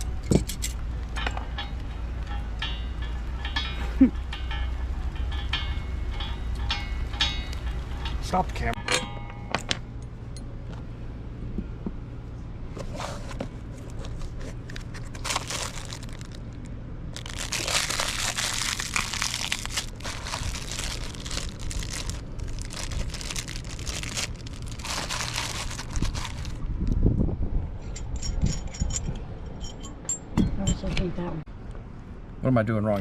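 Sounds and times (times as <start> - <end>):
steady low hum: 0.0 - 33.0
crinkling and rustling: 12.7 - 26.7.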